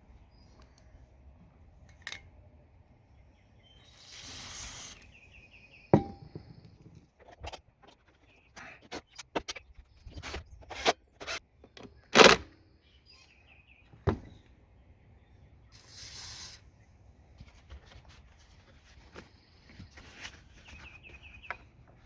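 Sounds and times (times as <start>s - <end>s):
short hiss: 3.9s - 5.2s, 15.8s - 16.6s.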